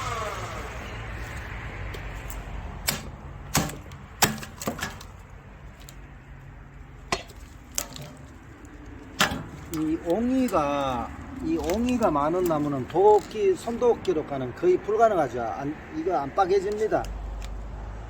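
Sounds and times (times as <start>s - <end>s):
log splitter hum: 0.0s - 14.2s
firewood splitting knocks: 1.9s - 6.0s, 7.1s - 13.7s.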